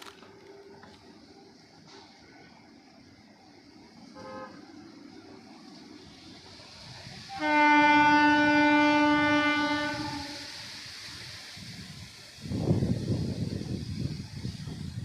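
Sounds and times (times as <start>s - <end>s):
locomotive horn: 4.1s - 4.8s, 7.3s - 10.5s.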